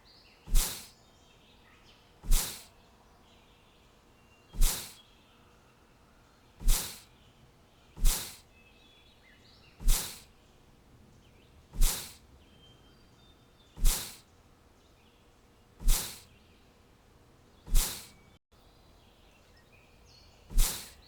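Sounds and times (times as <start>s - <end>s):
faint bird chirps: 0.0s - 21.0s
short sharp bursts of noise: 0.5s - 0.9s, 2.2s - 2.7s, 4.6s - 5.0s, 6.6s - 7.1s, 8.0s - 8.4s, 9.8s - 10.3s, 11.7s - 12.2s, 13.8s - 14.2s, 15.8s - 16.3s, 17.7s - 18.2s, 20.5s - 21.0s.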